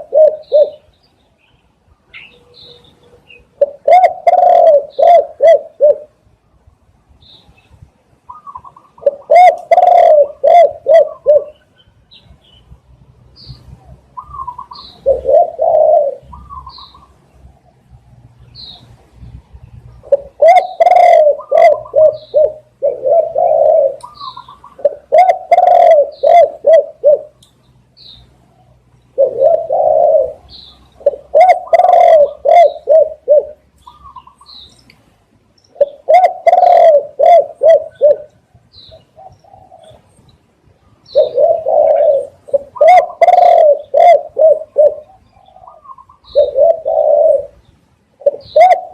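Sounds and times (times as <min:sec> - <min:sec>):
dove cooing: 0:00.0 - 0:00.9, 0:02.2 - 0:06.2, 0:08.3 - 0:11.7, 0:13.6 - 0:17.2, 0:20.0 - 0:27.4, 0:28.5 - 0:34.6, 0:35.7 - 0:40.2, 0:41.0 - 0:48.9
faint high bird chirps: 0:00.3 - 0:03.6.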